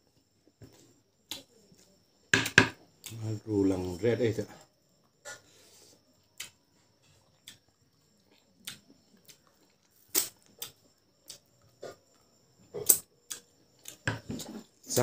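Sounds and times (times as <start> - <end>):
chewing with wet mouth clicks: 6.3 - 6.6, 7.2 - 11.5.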